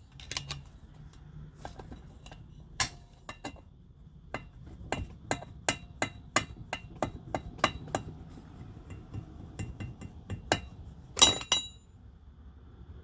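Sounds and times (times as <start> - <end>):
hammer tapping on metal: 4.3 - 11.8
metal clatter: 4.3 - 11.8.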